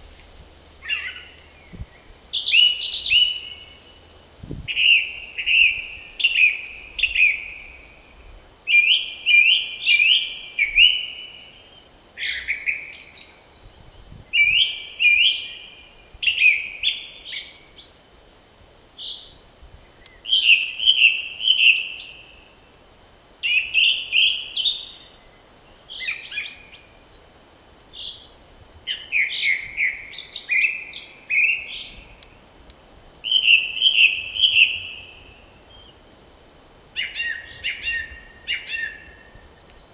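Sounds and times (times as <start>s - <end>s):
bird trilling: 0.8s - 1.4s, 33.2s - 35.2s, 37.0s - 39.3s.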